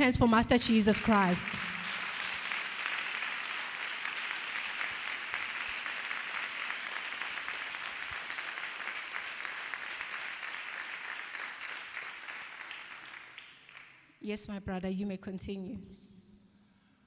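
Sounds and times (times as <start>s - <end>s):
congregation clapping: 0.6s - 14.1s.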